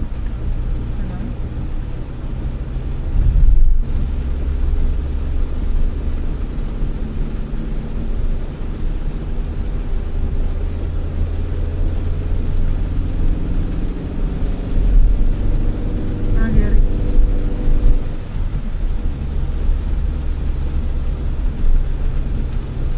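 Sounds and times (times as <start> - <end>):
car engine and tyre rumble: 0.0 - 22.9
tyres hissing on wet road: 0.0 - 22.9.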